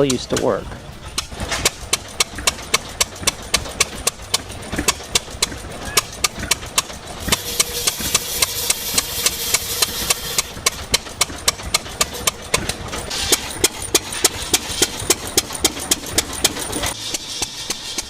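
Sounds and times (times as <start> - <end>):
engine clicking beat: 0.0 - 18.0
saw hissing through wood: 7.2 - 18.0.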